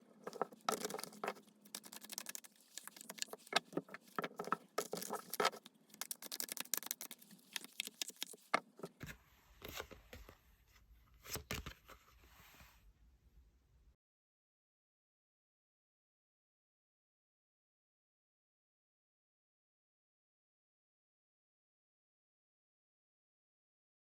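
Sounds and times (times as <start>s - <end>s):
cards shuffling: 0.3s - 9.1s.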